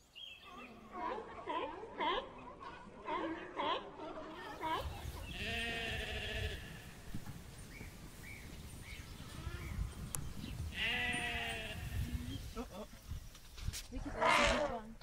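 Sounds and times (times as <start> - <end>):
sheep bleating: 5.3 - 7.0, 10.7 - 12.4.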